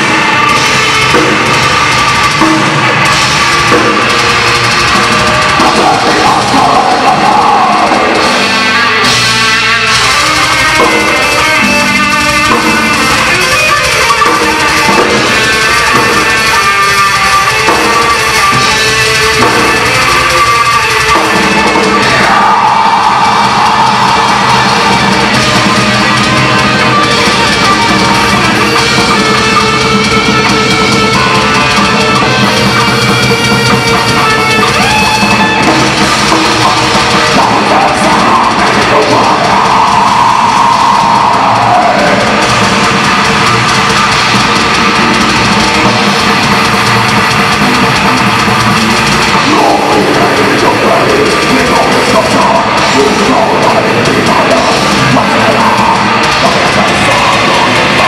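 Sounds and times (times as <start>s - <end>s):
heavy metal band playing live: 0.0s - 58.0s.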